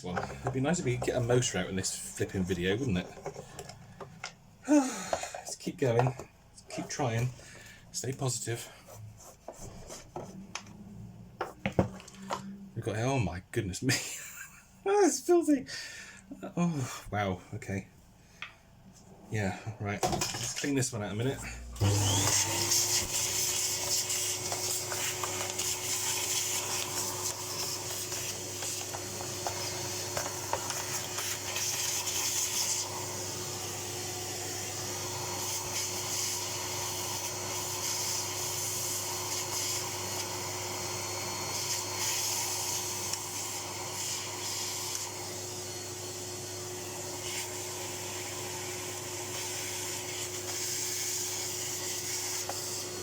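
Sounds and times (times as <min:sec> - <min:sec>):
vacuum cleaner motor hum: 0:21.3 - 0:53.0.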